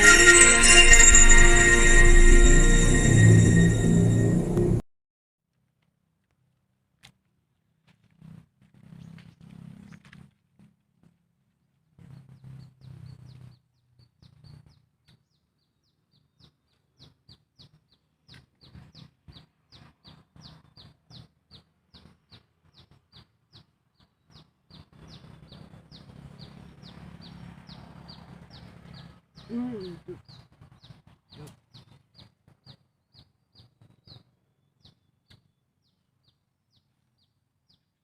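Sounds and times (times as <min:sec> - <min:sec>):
low hum: 0:00.0 - 0:04.8
bird chirping: 0:12.8 - 0:38.0.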